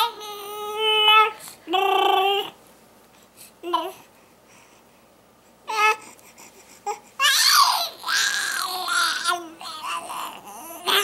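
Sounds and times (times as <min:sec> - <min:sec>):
baby crying: 0:06.9 - 0:11.0.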